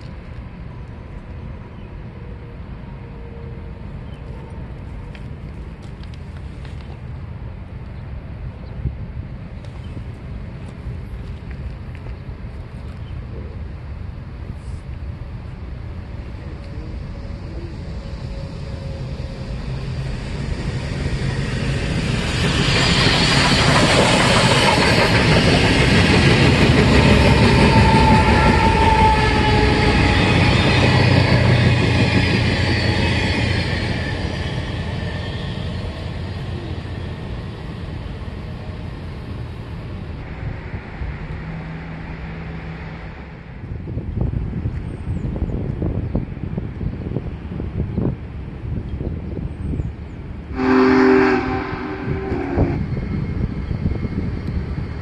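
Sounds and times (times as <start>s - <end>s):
train wheels rumbling on rail: 0.0s - 55.0s
high wheel squeal: 27.0s - 37.8s, 50.6s - 55.0s.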